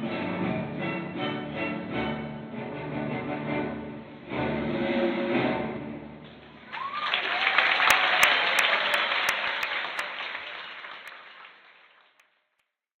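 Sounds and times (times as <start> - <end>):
audience applauding: 6.6 - 12.5.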